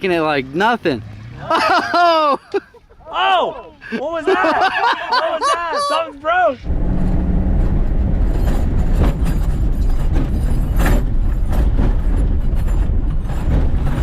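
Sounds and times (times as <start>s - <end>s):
truck engine rumble: 4.8s - 14.0s
clattering banging knocks: 7.4s - 14.0s.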